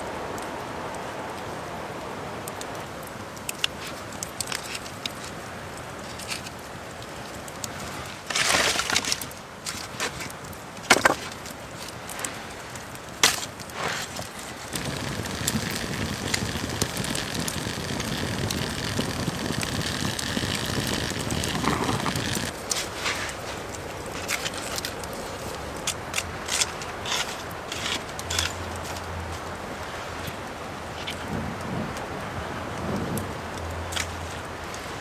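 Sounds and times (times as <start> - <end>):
steady hiss: 13.7 - 24.2.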